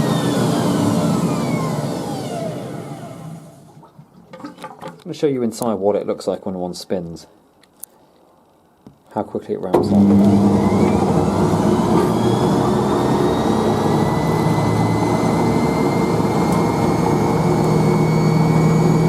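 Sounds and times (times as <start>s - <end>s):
rising motor whine: 0.0s - 3.7s, 9.9s - 19.0s
spin dryer rushing: 0.0s - 3.8s, 9.8s - 19.0s.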